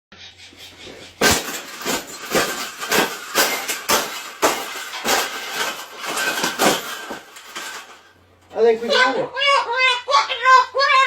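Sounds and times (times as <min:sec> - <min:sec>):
sharp banging: 0:00.9 - 0:08.2.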